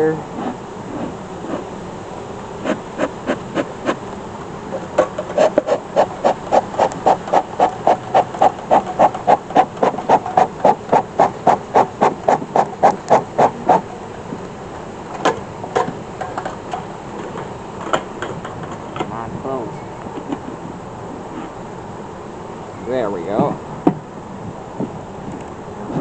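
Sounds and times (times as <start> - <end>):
smoker bellows puffing: 0.0 - 19.5.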